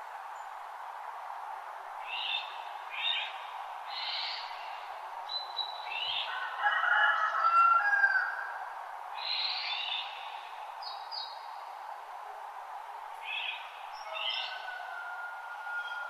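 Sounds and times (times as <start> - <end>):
rushing background hiss: 8.6 - 14.6.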